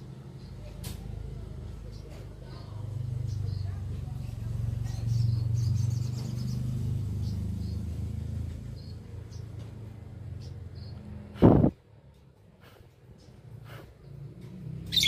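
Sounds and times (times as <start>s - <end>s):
vehicle engine hum: 0.0s - 15.0s
birds chirping: 1.4s - 11.7s, 12.7s - 15.0s.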